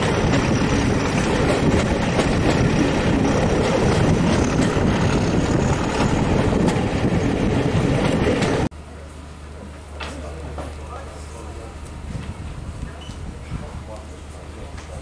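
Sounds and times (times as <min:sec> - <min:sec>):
train wheels rushing on rail: 0:00.0 - 0:08.7.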